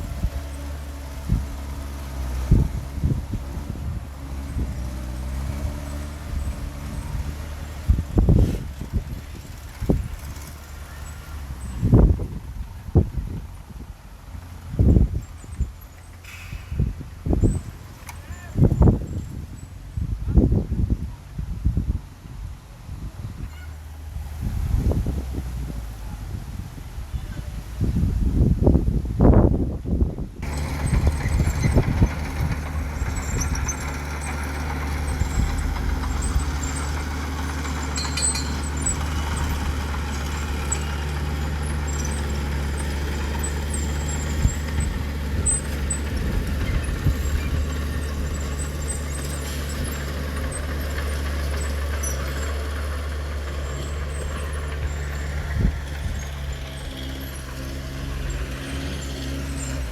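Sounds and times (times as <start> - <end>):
heavy diesel engine running: 0.0 - 15.3, 30.4 - 59.9.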